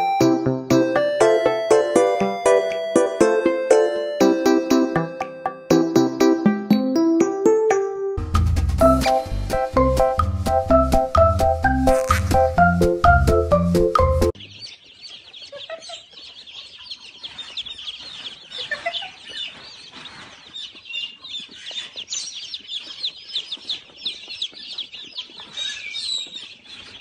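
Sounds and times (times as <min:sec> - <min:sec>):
baby chicks peeping: 0:08.8 - 0:27.0.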